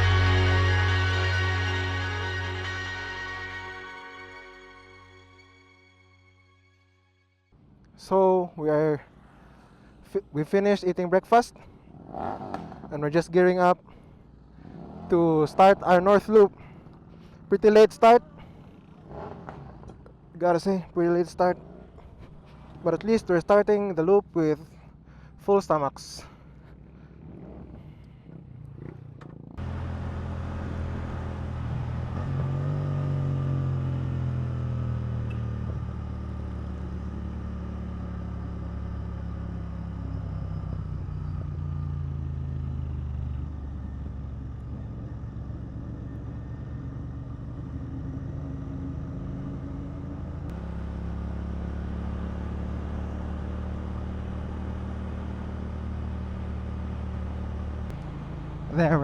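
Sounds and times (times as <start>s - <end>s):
motorcycle engine running: 26.4s - 59.0s.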